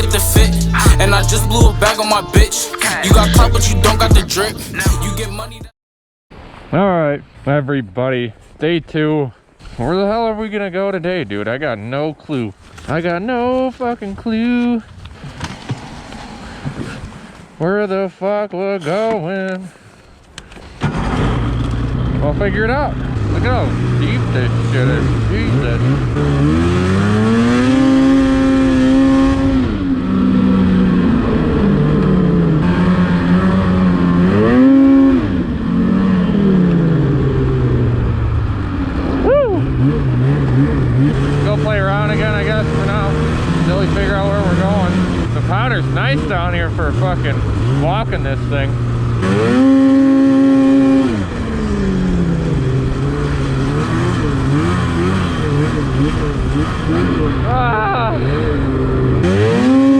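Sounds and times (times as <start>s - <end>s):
snowmobile engine revving: 0.0s - 5.6s, 21.0s - 59.9s.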